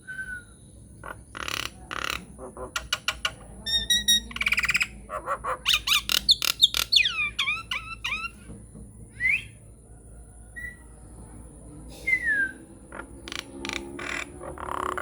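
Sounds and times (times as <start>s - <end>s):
myna whistling: 9.2s - 9.6s, 12.0s - 12.7s.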